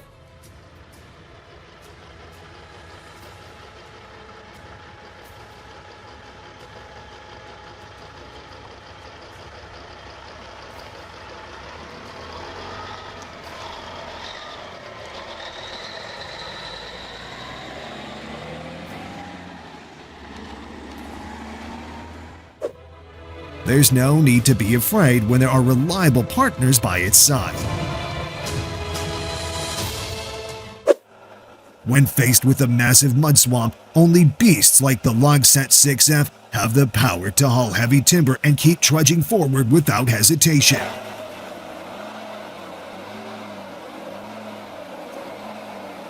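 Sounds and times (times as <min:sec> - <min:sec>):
heavy truck engine running: 0:00.0 - 0:46.0
high squeal: 0:12.6 - 0:18.2.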